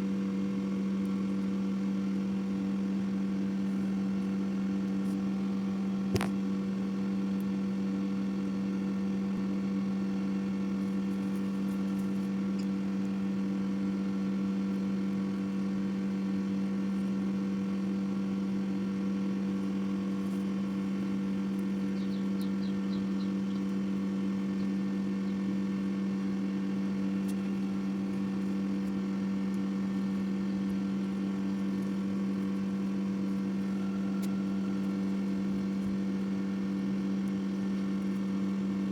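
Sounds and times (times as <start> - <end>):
steady low hum: 0.6 - 38.9.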